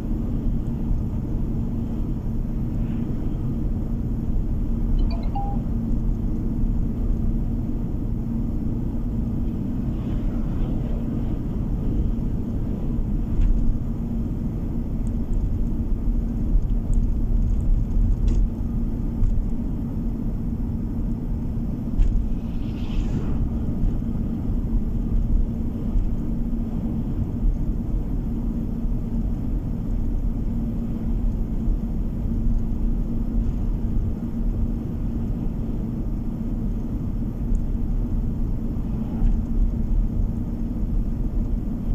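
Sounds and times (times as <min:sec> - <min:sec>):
car road and engine rumble: 0:00.0 - 0:41.9
constant hum: 0:00.0 - 0:41.9
short high-pitched sound: 0:05.0 - 0:05.7.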